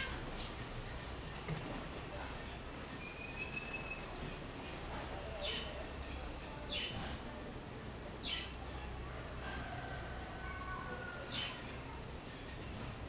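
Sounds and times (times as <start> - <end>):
small bird calling: 0.0 - 7.2, 10.2 - 13.0.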